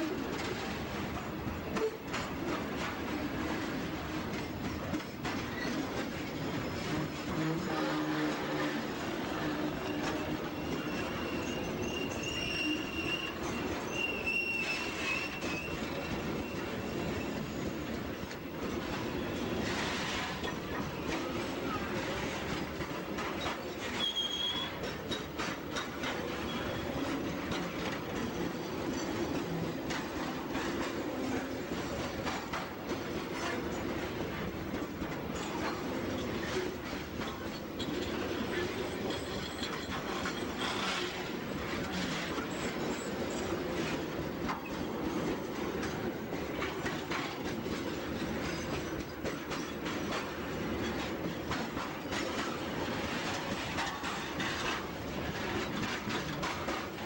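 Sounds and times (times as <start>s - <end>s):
freight train rumble: 0.0s - 57.0s
wheels clicking over rail joints: 8.9s - 57.0s
high wheel squeal: 9.6s - 17.5s, 24.0s - 24.8s.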